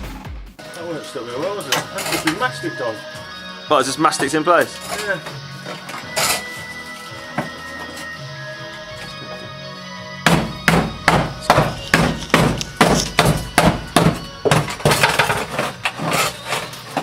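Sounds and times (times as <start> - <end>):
background music: 0.0 - 17.0
hammer knocking on metal bodywork: 10.2 - 15.1.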